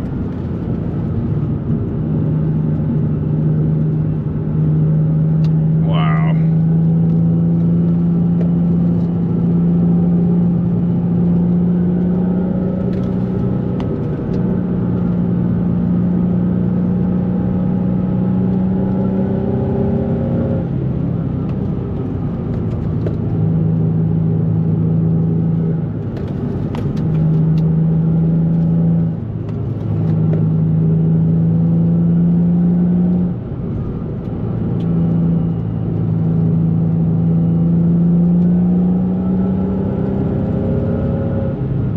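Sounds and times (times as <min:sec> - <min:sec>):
car engine and exhaust running: 0:00.0 - 0:41.9.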